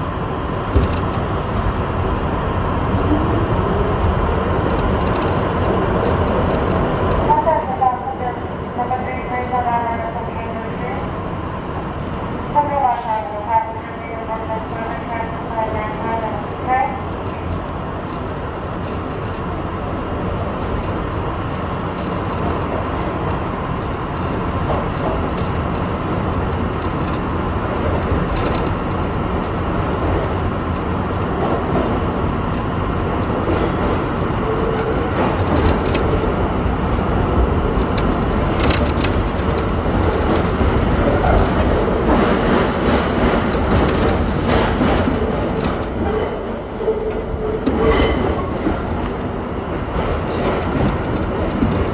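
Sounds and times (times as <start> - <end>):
subway car rumbling on track: 0.0 - 51.9
sharp clicks and knocks: 0.7 - 1.4, 4.6 - 7.5, 20.5 - 36.4, 37.7 - 46.1.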